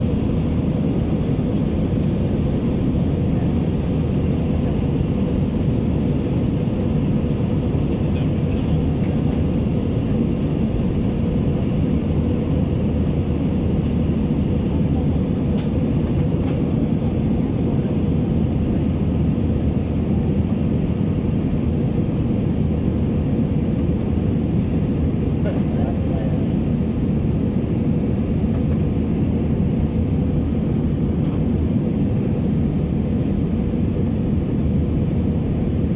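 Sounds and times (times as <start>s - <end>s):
airplane cabin engine rumble: 0.0s - 35.9s.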